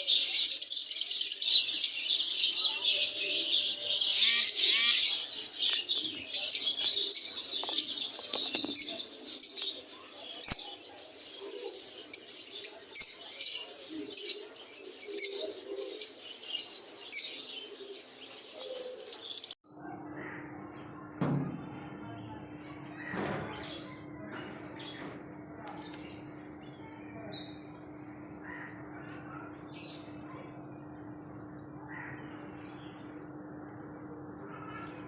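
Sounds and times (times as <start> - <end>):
lovebirds chirping: 0.0 - 19.6.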